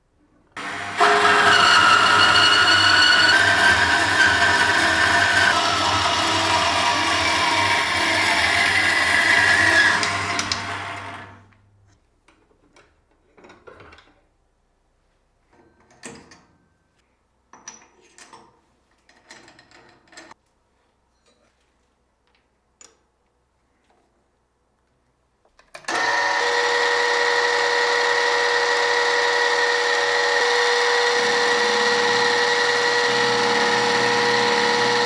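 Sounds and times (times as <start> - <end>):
electric machine tool whining: 0.6 - 11.5, 25.9 - 35.0.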